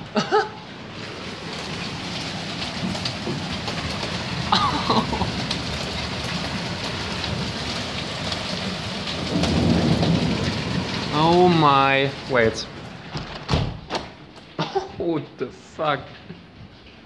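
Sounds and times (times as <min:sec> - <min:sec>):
hailstones hitting hard surfaces: 0:00.0 - 0:13.1
heavy rain: 0:00.0 - 0:17.0.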